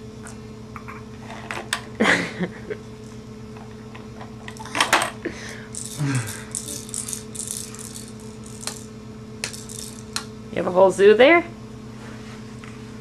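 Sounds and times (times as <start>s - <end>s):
steady mechanical hum: 0.0s - 13.0s
toy pieces clattering: 5.7s - 10.2s.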